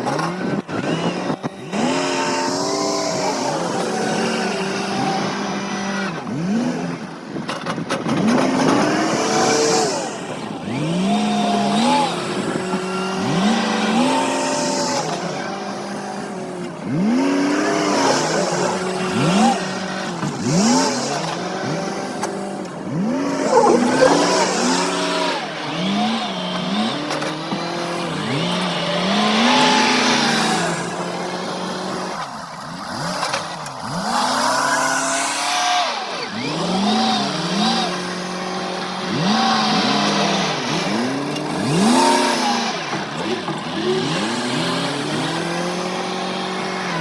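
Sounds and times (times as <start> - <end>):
machinery engines revving: 0.0 - 47.0
low engine hum: 14.9 - 26.7.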